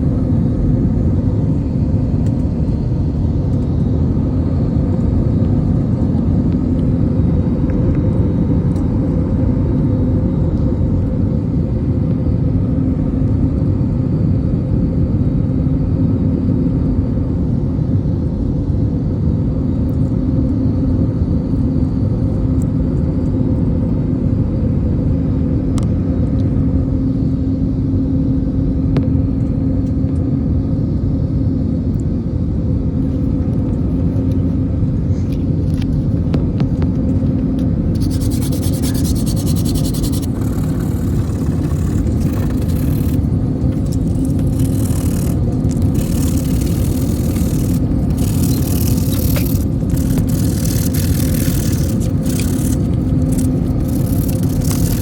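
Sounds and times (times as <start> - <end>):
vehicle engine rumbling: 33.2 - 55.0.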